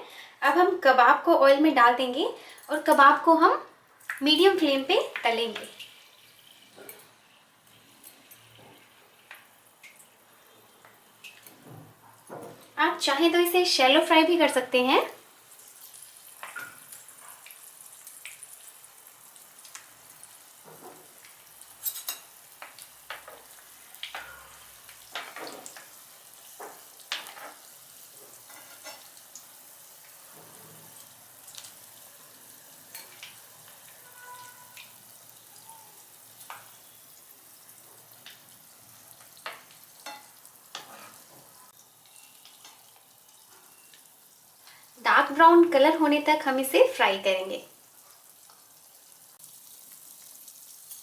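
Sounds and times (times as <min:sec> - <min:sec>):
food deep-frying in oil: 0:00.1 - 0:51.0
oil popping and crackling: 0:04.0 - 0:04.4, 0:15.6 - 0:28.4, 0:30.3 - 0:31.9.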